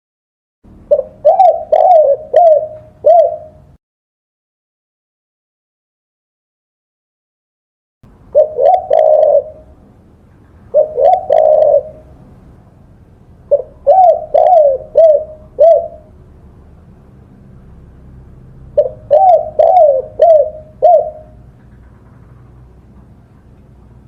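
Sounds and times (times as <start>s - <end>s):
dove cooing: 0.9s - 3.8s, 8.3s - 9.8s, 10.7s - 12.2s, 13.5s - 16.2s, 18.7s - 22.0s.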